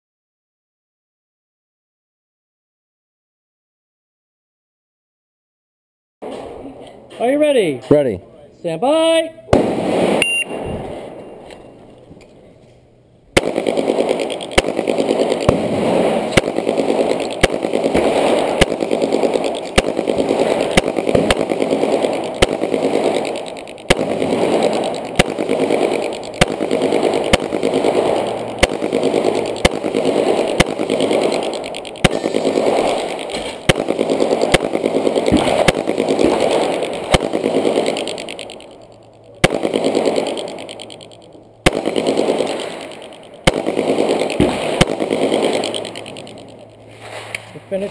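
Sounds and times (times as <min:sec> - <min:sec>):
pistol firing rapid shots: 0:09.5 - 0:11.2, 0:13.3 - 0:46.9.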